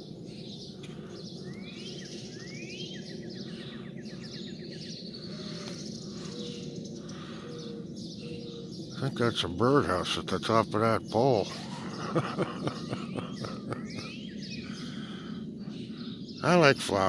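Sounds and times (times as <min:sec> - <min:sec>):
songbirds whistling and trilling: 0:00.0 - 0:17.0.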